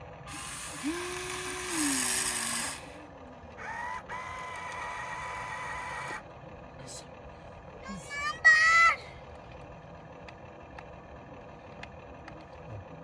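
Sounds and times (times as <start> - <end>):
toy electric motors whining: 0.2 - 3.0, 3.6 - 6.3.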